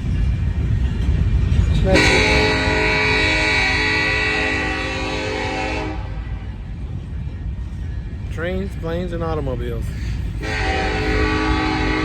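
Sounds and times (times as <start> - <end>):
freight train rumbling: 0.0 - 12.0
locomotive air horn: 1.8 - 6.3, 10.4 - 12.0.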